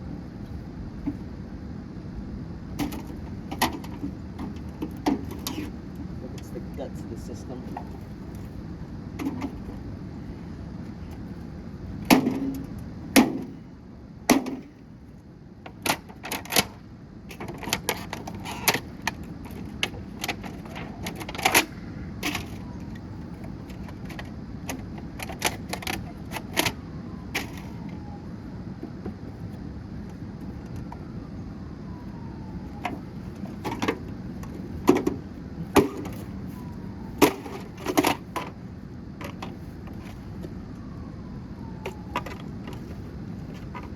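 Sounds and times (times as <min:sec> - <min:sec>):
plastic and metal cracking: 0:15.7 - 0:28.0, 0:37.2 - 0:38.6.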